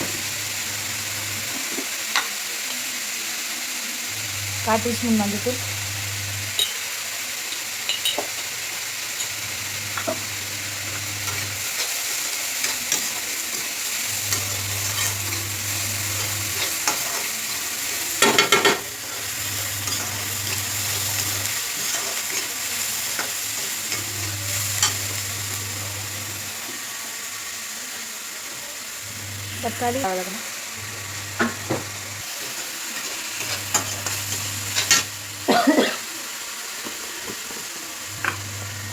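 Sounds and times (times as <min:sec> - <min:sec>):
food sizzling in a pan: 0:00.0 - 0:38.9
spatula scraping pan: 0:09.9 - 0:25.4.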